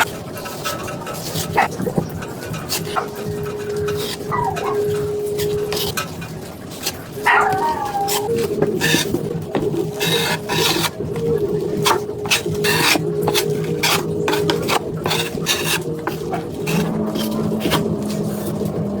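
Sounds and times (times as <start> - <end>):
tool scraping on drywall: 6.7 - 18.6.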